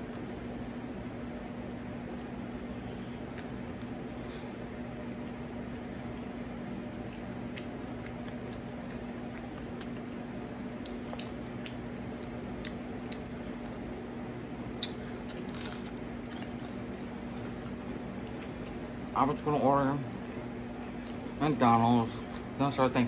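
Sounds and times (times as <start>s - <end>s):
steady low hum: 0.0s - 23.0s
person chewing: 7.0s - 13.9s, 14.7s - 18.8s.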